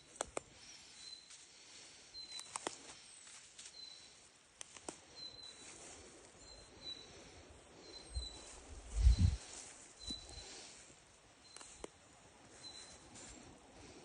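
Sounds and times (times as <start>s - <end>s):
sharp clicks: 2.3s - 2.8s.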